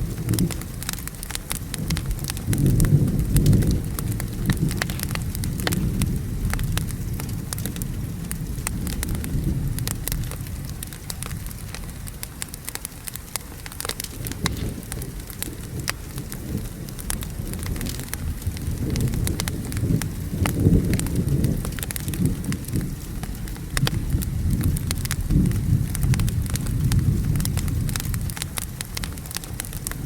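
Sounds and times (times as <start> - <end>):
rolling thunder rumble: 0.0 - 30.0
steady rain: 0.0 - 30.0
wood fire crackling and popping: 0.0 - 30.0.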